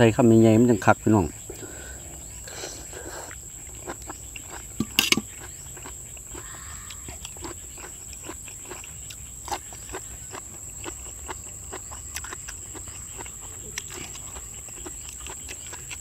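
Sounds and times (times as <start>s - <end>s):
wet chewing and mouth clicks: 3.2s - 16.0s
spoon clattering against plate: 4.8s - 5.3s.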